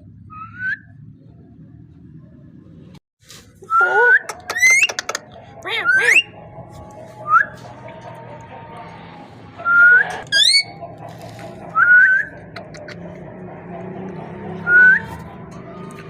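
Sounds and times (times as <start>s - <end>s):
parrot whistling: 3.6s - 6.4s, 9.6s - 10.8s, 11.7s - 12.9s.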